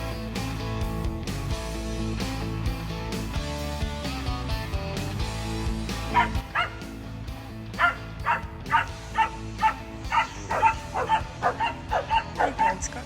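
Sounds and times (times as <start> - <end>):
background music: 0.0 - 13.0
dog barking in high yips: 6.1 - 6.8, 7.8 - 12.8.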